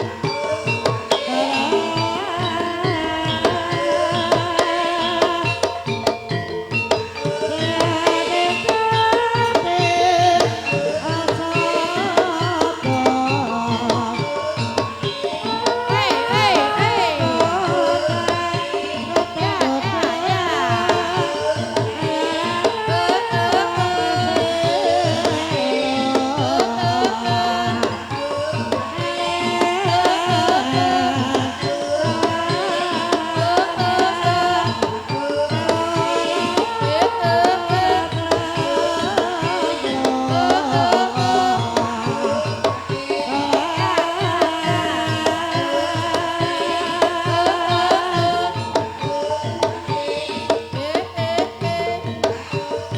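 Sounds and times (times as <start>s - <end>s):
gamelan ensemble playing: 0.0s - 52.9s
hand drumming: 0.0s - 52.9s
person singing: 0.0s - 52.9s.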